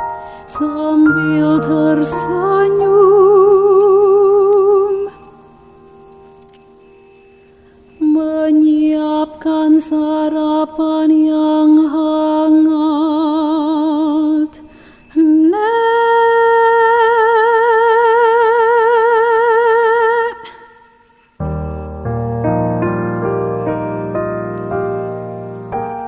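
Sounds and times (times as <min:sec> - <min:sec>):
person humming with vibrato: 0:00.0 - 0:05.4.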